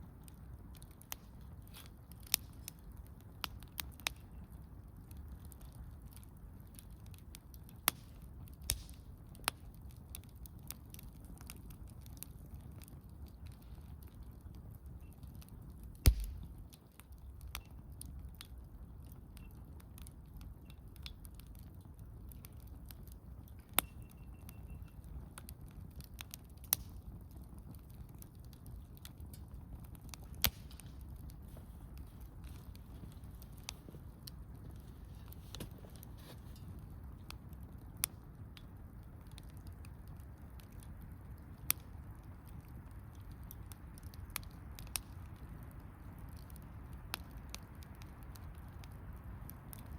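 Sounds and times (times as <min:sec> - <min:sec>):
campfire crackling and popping: 0:00.0 - 0:49.9.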